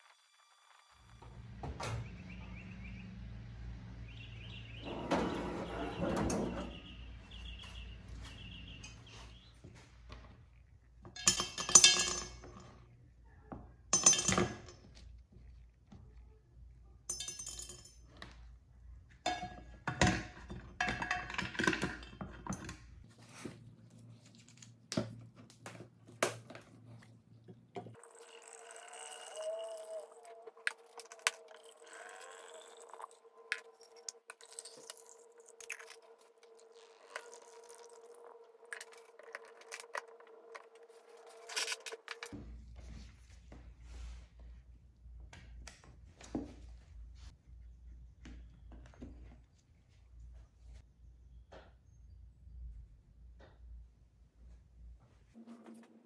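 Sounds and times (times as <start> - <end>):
plastic parts clinking against glass: 11.1 - 12.8, 19.3 - 22.9, 28.0 - 42.3
liquid pouring with gurgle: 28.0 - 39.9.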